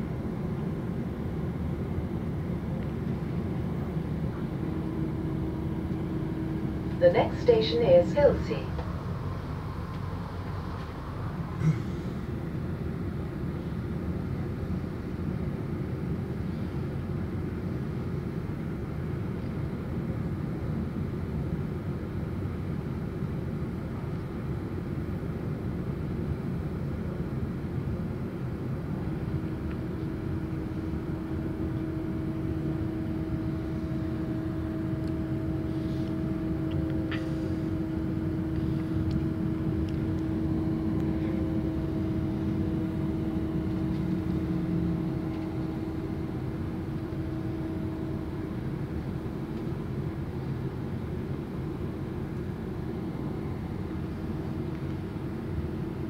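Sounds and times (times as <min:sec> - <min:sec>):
steady whine: 0:00.0 - 0:16.4, 0:28.6 - 0:56.0
train rumbling on track: 0:00.0 - 0:56.0.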